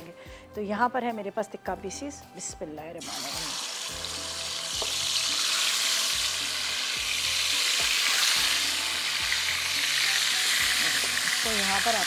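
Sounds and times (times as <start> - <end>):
chicken sizzling in hot oil: 3.0 - 12.0.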